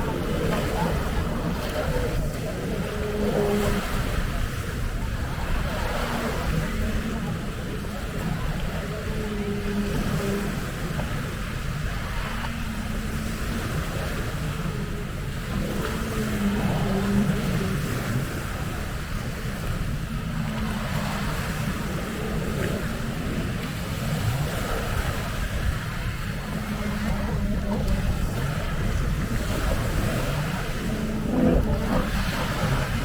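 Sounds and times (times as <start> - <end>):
jet ski engines racing: 0.0 - 33.0
waves breaking: 0.0 - 33.0
wind buffeting microphone: 0.0 - 33.0.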